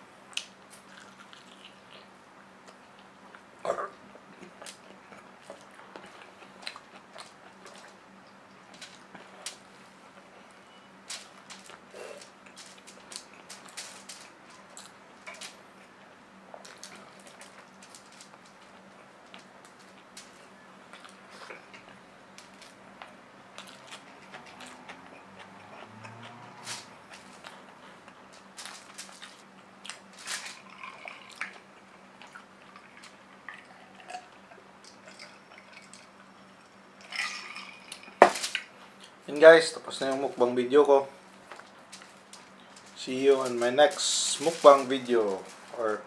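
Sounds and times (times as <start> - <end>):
chewing: 0.3 - 3.5, 4.3 - 15.4, 16.5 - 38.2
man eating: 0.3 - 39.2
drinking and swallowing water: 30.6 - 36.1.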